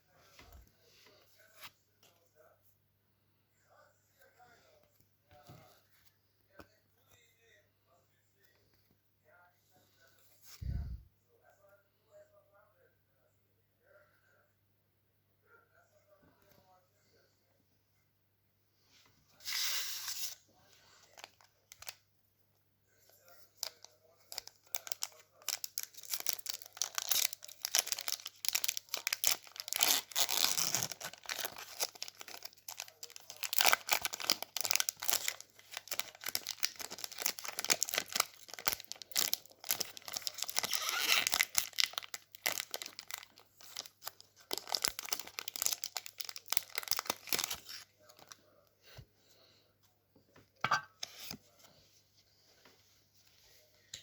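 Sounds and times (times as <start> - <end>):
foil wrapper crinkling: 23.6 - 48.3.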